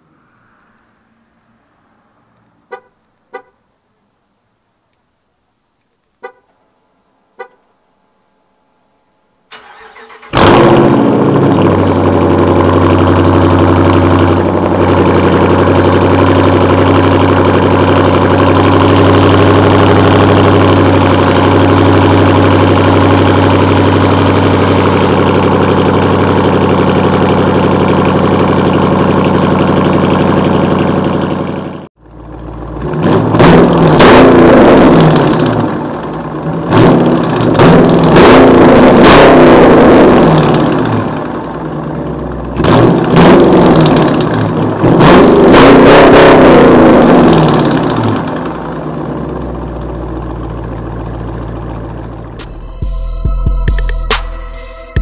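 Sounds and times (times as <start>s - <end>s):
car engine starting and idling: 9.4s - 55.0s
short beeps: 52.4s - 55.0s.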